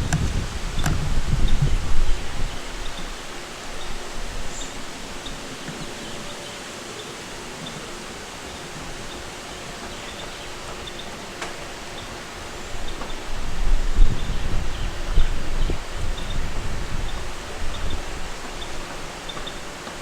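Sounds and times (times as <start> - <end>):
wind rumble on microphone: 0.0 - 6.3, 12.4 - 19.8
steady outdoor hiss: 0.0 - 20.0.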